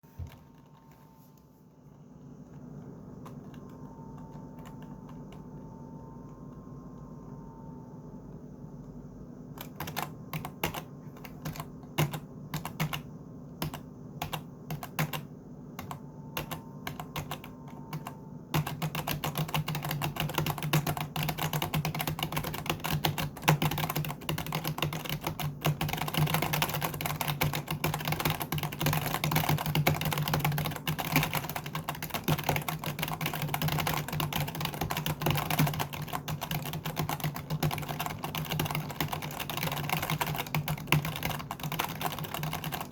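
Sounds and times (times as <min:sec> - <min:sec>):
computer keyboard typing: 0:02.8 - 0:05.6, 0:09.5 - 0:42.9.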